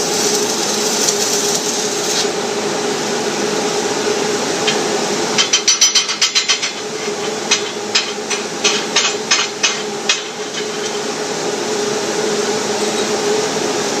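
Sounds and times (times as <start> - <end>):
steady hum and hiss: 0.0 - 14.0
hammer tapping on metal: 5.4 - 6.9, 7.5 - 11.0.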